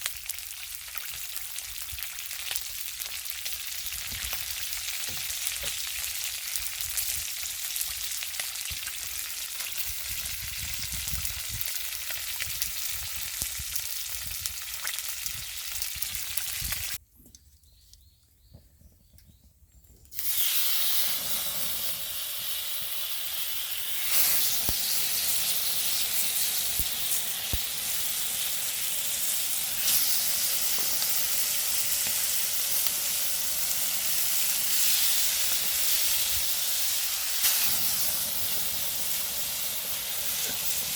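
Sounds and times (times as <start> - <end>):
clams sizzling on a grill: 0.0 - 17.0, 20.1 - 40.9
small crackles: 19.0 - 40.9.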